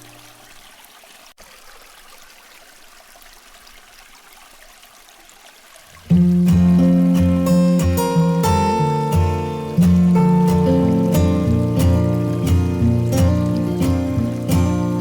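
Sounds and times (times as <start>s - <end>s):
running water hissing: 0.0s - 15.0s
acoustic guitar music: 6.0s - 15.0s.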